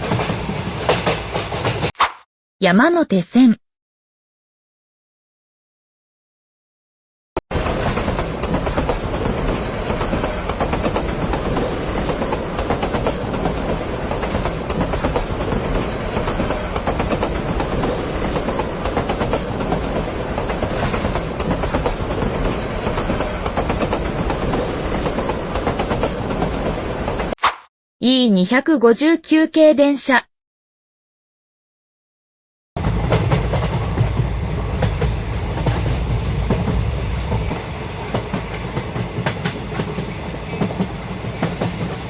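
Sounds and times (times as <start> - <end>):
train wheels clickety-clack: 0.0 - 1.9, 7.8 - 26.7, 32.8 - 42.0.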